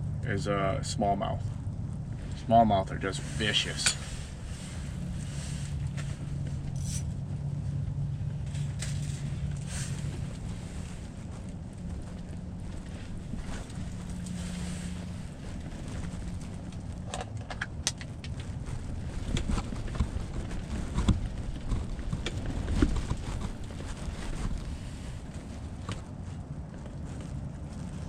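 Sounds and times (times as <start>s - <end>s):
wind buffeting microphone: 1.6s - 28.0s
sharp clicks and knocks: 17.1s - 18.5s.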